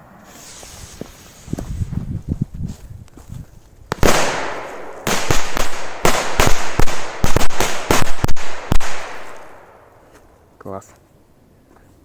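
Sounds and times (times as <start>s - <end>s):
firecrackers banging: 3.9s - 9.9s.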